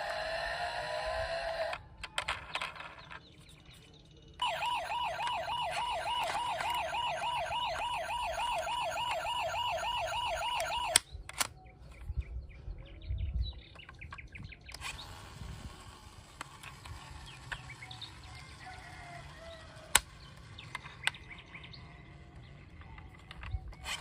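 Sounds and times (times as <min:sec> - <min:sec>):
toy siren warbling: 0:00.0 - 0:01.8, 0:04.4 - 0:11.0.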